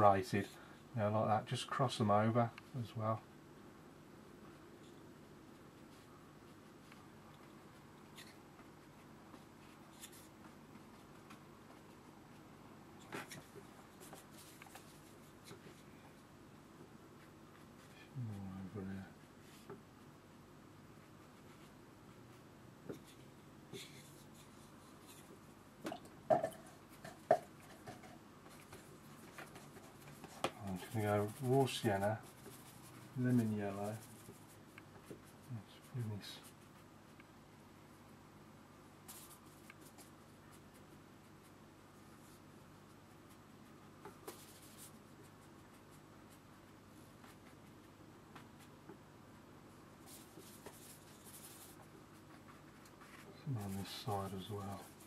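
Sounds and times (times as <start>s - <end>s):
brush strokes on paper: 4.5s - 12.5s, 13.2s - 16.3s, 26.7s - 36.9s, 39.0s - 48.8s, 50.0s - 55.0s.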